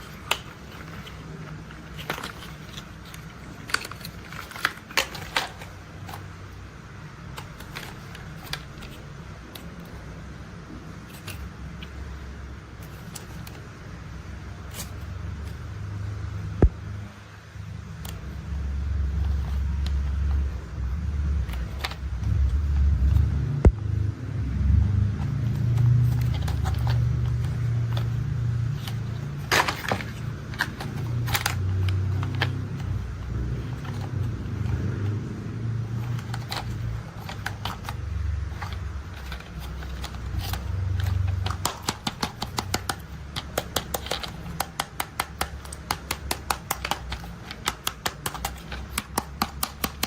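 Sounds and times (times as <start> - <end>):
low steady hum: 0.0 - 50.0
toy vehicles clicking: 25.6 - 35.2, 35.8 - 50.0.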